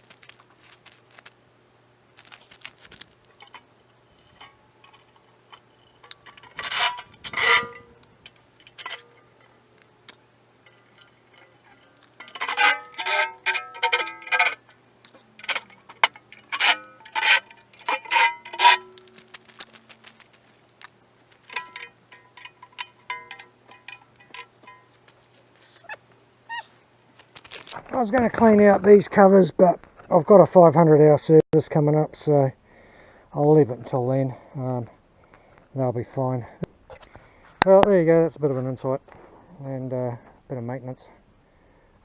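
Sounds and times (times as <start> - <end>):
metallic clanks of tools and parts: 3.3 - 19.8, 21.4 - 25.2.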